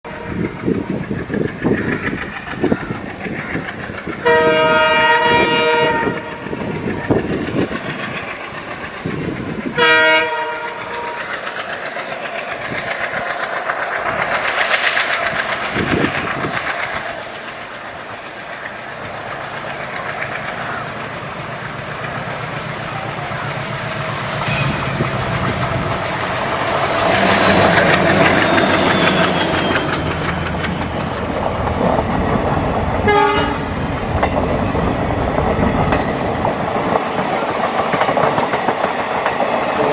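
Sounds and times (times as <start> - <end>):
diesel train horn: 0.1 - 0.5, 4.2 - 6.7, 9.7 - 11.3, 24.3 - 25.9, 33.0 - 33.8
train rumble and wheel clatter: 0.1 - 39.9.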